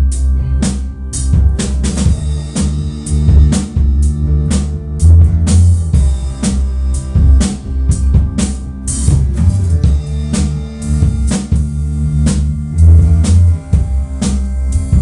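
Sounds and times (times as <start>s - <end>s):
instrumental band music: 0.0s - 15.0s.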